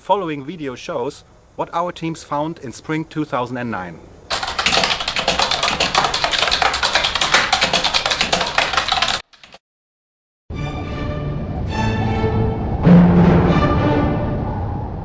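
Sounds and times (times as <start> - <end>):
rapid dense clicking: 4.3 - 9.6.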